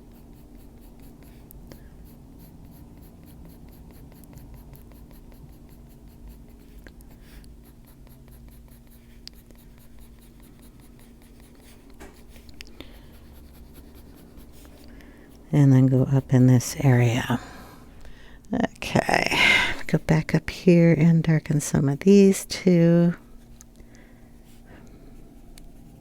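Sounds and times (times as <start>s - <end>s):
coloured pencil scratching on paper: 0.0s - 17.1s.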